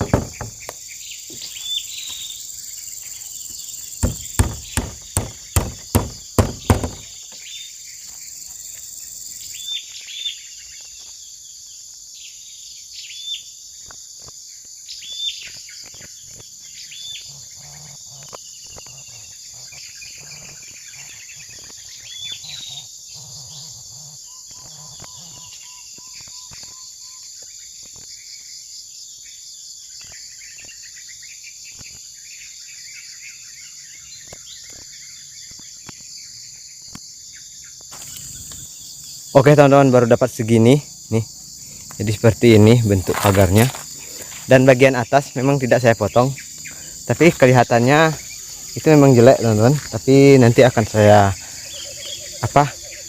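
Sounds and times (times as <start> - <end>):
bird chirping: 0.0 - 11.2, 37.3 - 53.0
insects droning: 0.0 - 53.0.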